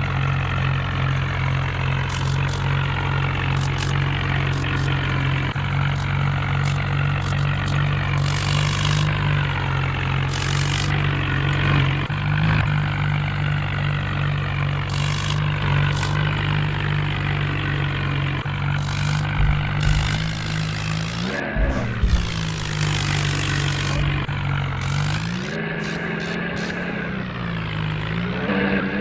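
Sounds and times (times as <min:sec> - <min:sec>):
diesel tractor engine running: 0:00.0 - 0:29.0
high hiss bursts: 0:18.8 - 0:27.0.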